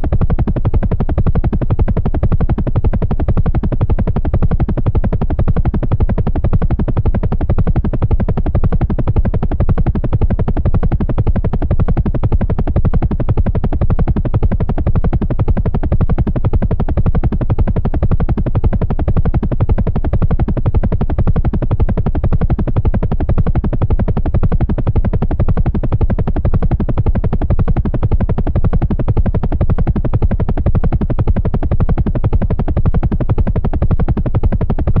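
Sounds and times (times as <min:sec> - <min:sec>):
helicopter rotor beating: 0:00.0 - 0:35.0.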